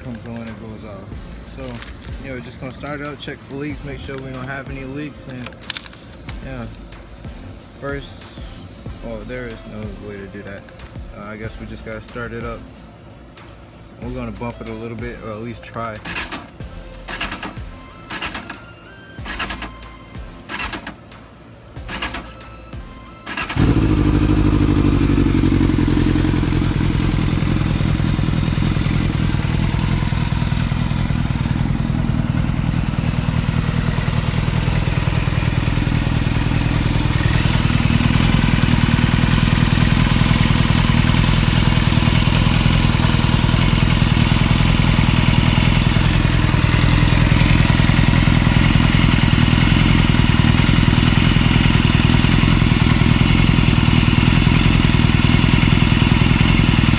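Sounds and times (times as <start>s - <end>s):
motorcycle engine idling: 19.2s - 19.8s, 21.9s - 22.3s, 23.3s - 56.9s.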